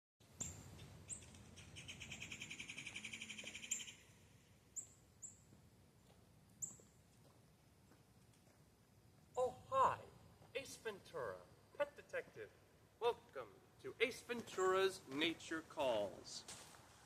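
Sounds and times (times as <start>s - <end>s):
bird trill: 0.2s - 5.4s
birds chirping: 0.2s - 5.5s, 10.8s - 16.4s.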